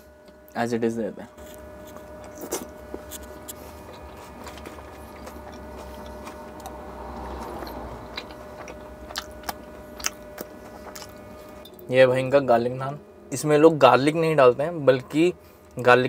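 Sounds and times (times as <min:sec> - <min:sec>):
steady hum: 0:00.0 - 0:16.0
chewing with wet mouth clicks: 0:01.4 - 0:11.8.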